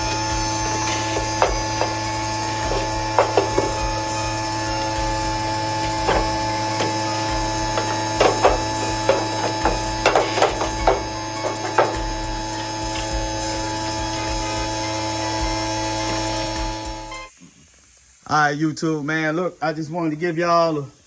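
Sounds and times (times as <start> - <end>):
steady hum: 0.0 - 17.3
sharp clicks and knocks: 0.8 - 4.0, 5.8 - 12.3.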